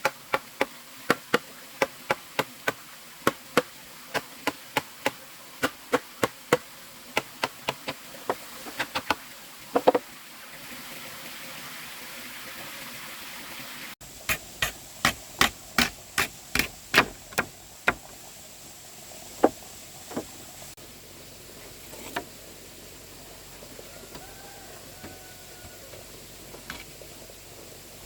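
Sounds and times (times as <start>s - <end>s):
hand tool striking wood: 0.0s - 6.6s, 7.2s - 9.2s, 9.8s - 10.0s, 14.3s - 18.1s.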